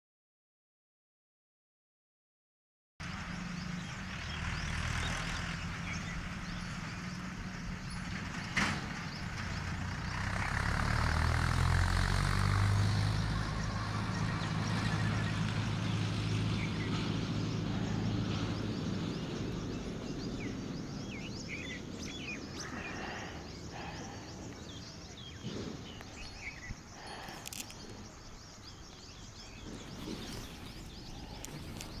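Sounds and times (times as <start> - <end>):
distant traffic rumble: 3.0 - 32.0
bird chirps: 16.3 - 32.0.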